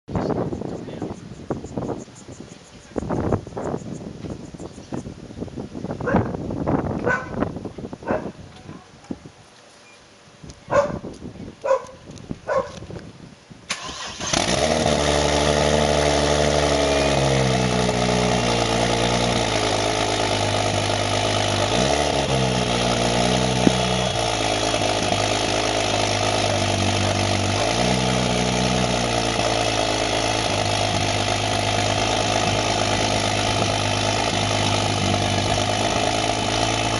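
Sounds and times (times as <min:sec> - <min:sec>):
car engine starting and running rough: 0:13.7 - 0:36.9.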